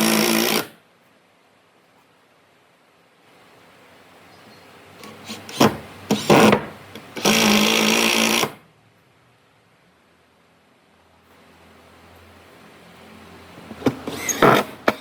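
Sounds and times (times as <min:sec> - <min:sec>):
small electric power tool running: 0:00.0 - 0:00.7, 0:07.2 - 0:08.6.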